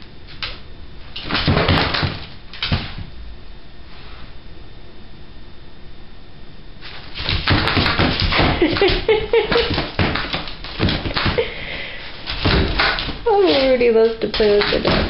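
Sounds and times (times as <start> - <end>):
dog scuffling with a toy: 6.8 - 11.4, 12.1 - 15.0.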